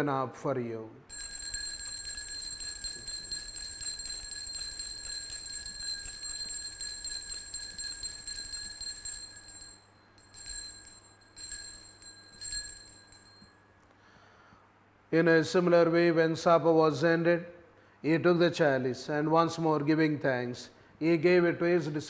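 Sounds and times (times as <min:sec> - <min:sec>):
altar bells ringing: 0:01.1 - 0:13.6.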